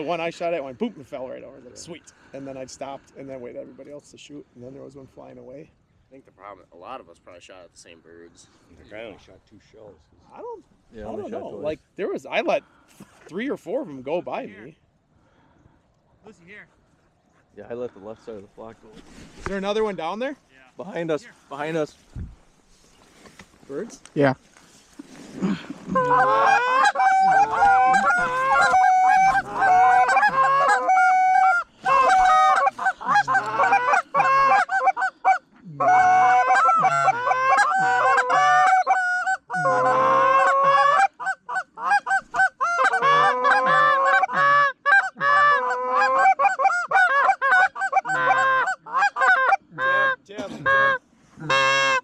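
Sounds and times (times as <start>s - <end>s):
geese honking: 25.4s - 52.0s.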